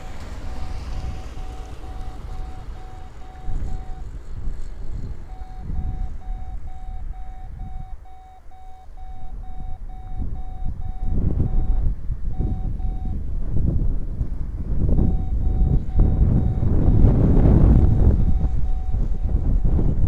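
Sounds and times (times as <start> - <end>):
wind buffeting microphone: 0.0 - 20.0
rapid electronic beeping: 0.6 - 4.1, 5.3 - 11.8, 15.0 - 17.0, 17.7 - 19.8.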